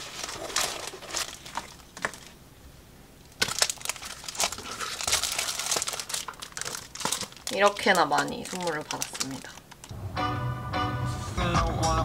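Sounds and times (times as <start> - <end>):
packaging rustling: 0.0 - 2.4, 3.4 - 9.9
plastic wrap crinkling: 0.0 - 2.4, 3.3 - 9.9.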